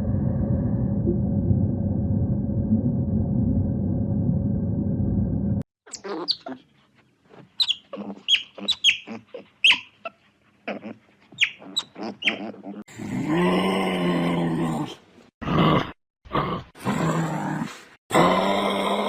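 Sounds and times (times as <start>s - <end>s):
high squeaky animal calls: 5.9s - 6.6s, 7.6s - 12.7s.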